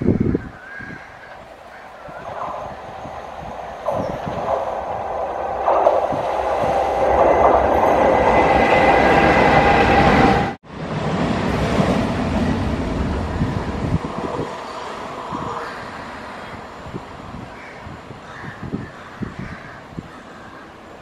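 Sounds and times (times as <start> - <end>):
freight train wheel and rail noise: 0.0 - 21.0
electric train running: 1.9 - 16.7.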